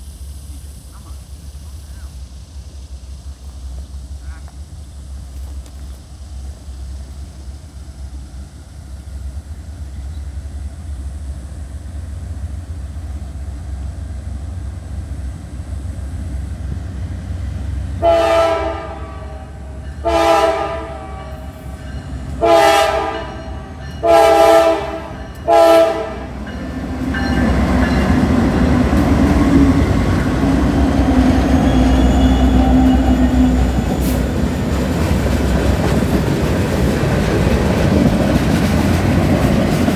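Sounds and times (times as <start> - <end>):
diesel locomotive engine rumble: 0.0 - 39.9
train wheels clacking on rails: 0.0 - 39.9
train air horn blasts: 18.0 - 26.7.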